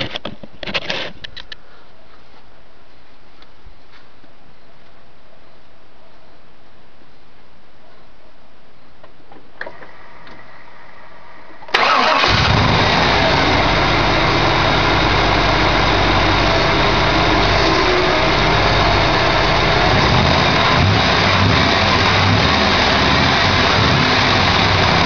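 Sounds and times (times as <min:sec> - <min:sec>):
truck engine starting and idling: 0:09.7 - 0:25.0.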